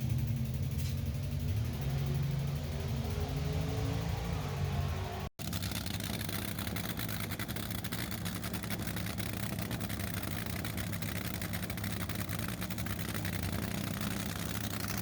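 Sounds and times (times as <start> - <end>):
racing car engine idling: 5.4 - 15.0.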